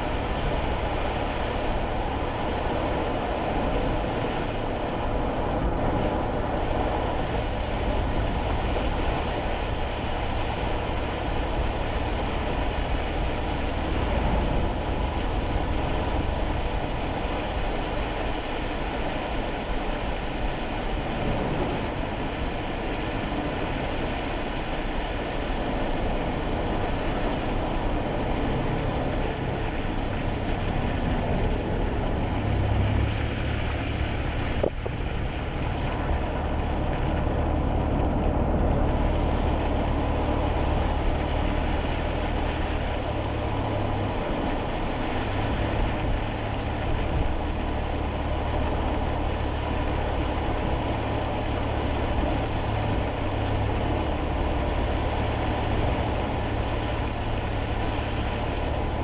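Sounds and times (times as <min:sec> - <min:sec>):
car engine hum: 0:00.0 - 0:59.0
road noise and tyre hiss: 0:00.0 - 0:59.0.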